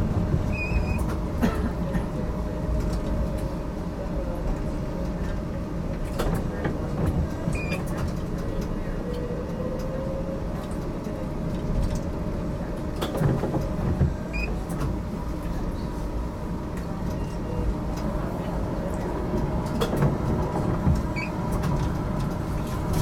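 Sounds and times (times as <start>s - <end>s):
tram rumbling on track: 0.0s - 23.0s.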